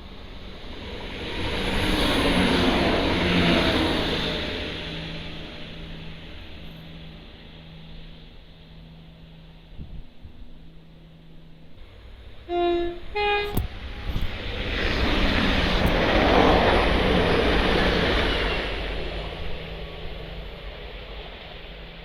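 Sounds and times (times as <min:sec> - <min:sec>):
train wheel and rail noise: 0:00.0 - 0:22.0
train horn notes: 0:12.4 - 0:14.3.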